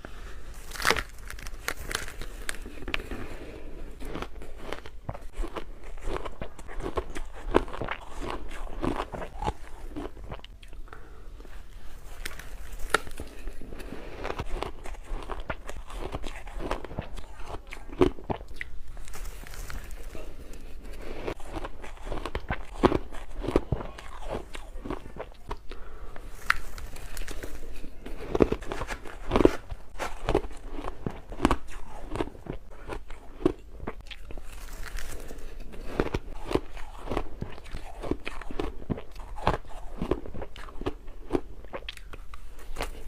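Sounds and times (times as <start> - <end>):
shaved ice crunching: 0.6 - 2.7.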